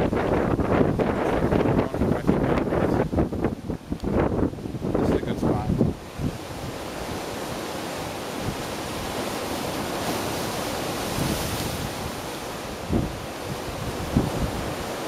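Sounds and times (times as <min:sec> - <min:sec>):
ocean waves washing: 0:00.0 - 0:15.0
wind on microphone: 0:00.0 - 0:15.0.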